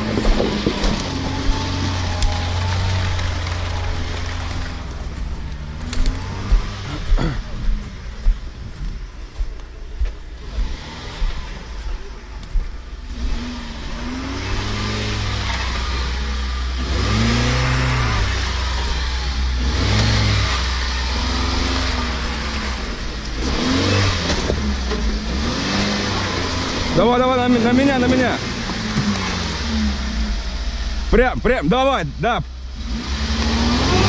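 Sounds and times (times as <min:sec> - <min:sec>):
engine revving in bursts: 0:05.6 - 0:07.4, 0:10.4 - 0:12.0, 0:13.0 - 0:31.2, 0:32.7 - 0:34.0.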